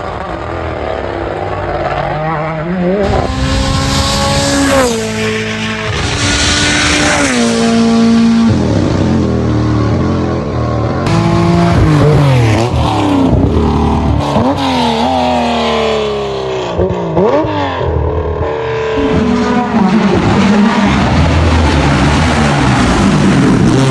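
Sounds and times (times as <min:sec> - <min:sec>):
rally car engines at full throttle: 0:00.0 - 0:23.9
car passing and pulling away: 0:02.0 - 0:16.8.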